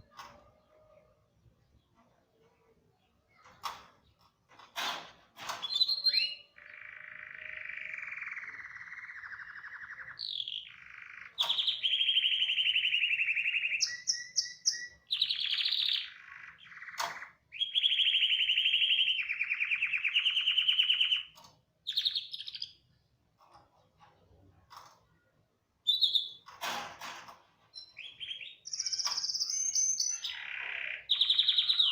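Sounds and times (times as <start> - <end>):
canary trilling song: 5.5 - 23.0, 25.8 - 26.7, 27.7 - 31.9
high bird chirps: 5.6 - 22.9, 25.8 - 26.5, 27.7 - 31.9.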